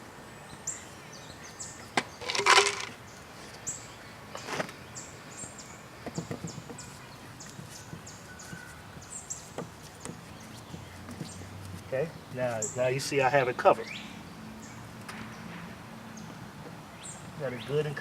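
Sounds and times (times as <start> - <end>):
sharp knocks: 6.0 - 6.8.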